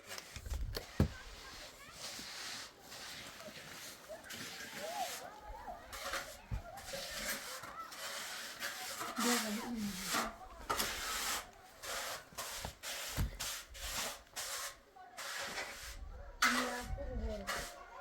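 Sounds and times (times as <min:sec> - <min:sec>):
hand tool scraping hard surface: 0:00.0 - 0:17.8.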